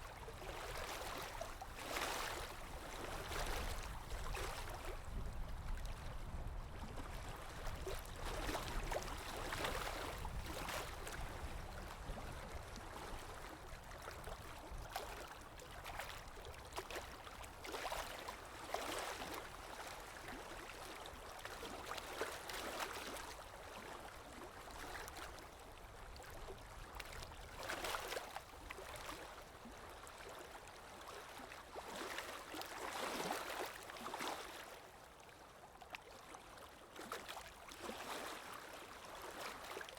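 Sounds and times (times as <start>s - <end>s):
water lapping and splashing: 0.0s - 39.9s
wind: 0.0s - 39.9s.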